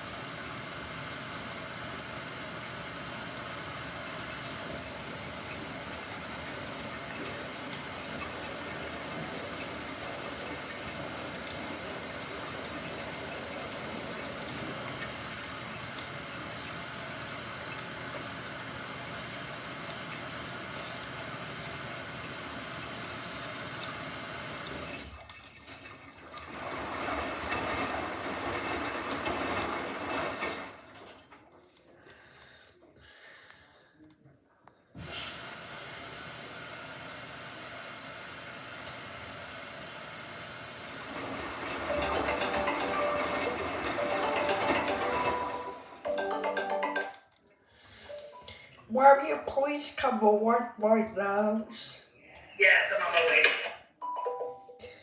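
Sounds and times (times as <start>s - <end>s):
water running into washing machine: 0.0s - 31.7s, 35.0s - 46.3s.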